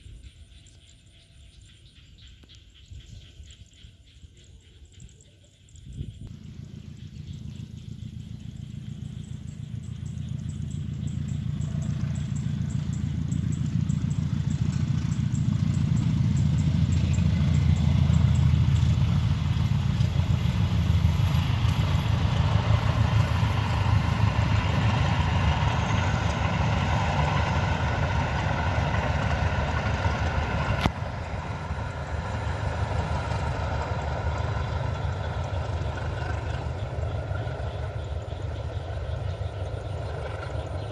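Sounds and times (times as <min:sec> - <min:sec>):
train rumbling past: 0:00.0 - 0:40.9.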